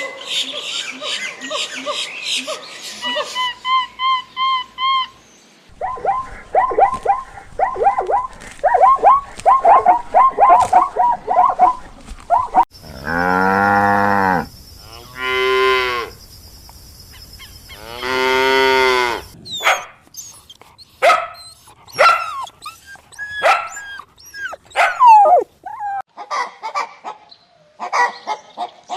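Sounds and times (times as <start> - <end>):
cow mooing: 12.8 - 16.1, 17.8 - 19.4
fast high animal calls: 21.4 - 26.0.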